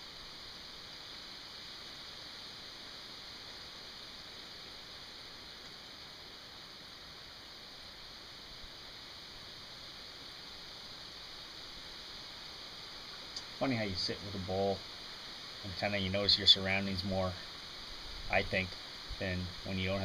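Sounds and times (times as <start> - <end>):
steady hiss: 0.0 - 20.0
faint tick: 13.1 - 13.5.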